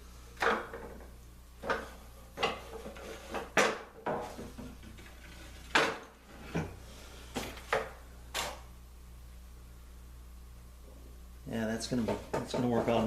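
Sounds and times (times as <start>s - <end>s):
wooden strip knocking and clacking: 12.0s - 13.0s.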